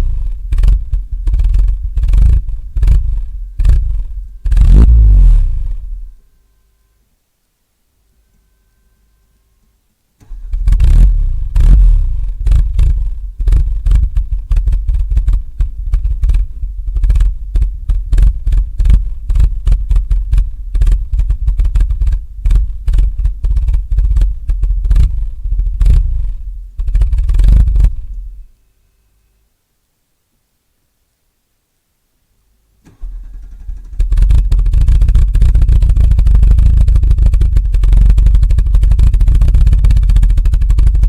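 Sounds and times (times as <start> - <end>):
car engine revving: 0.0 - 6.1, 10.2 - 20.1
exhaust crackle: 0.0 - 6.2, 10.2 - 28.5, 32.8 - 41.0.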